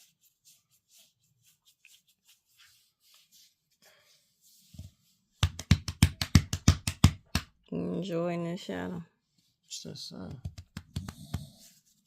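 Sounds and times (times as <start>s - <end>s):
rubbing strokes on fur: 0.0s - 5.3s.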